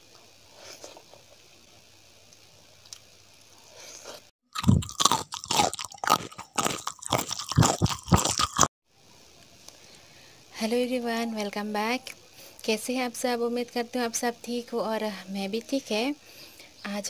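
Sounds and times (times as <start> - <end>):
crunching of crisp food: 3.7 - 8.7.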